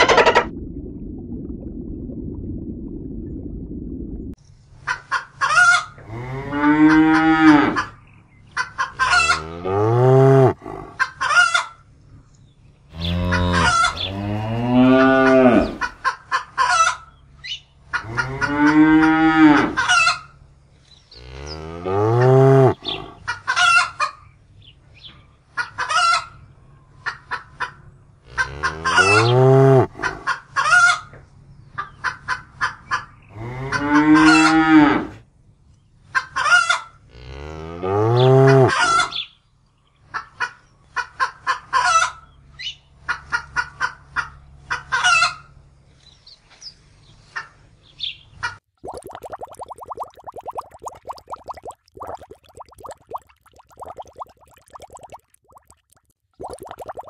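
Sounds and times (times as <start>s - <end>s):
high clucking sounds: 0.0s - 0.5s.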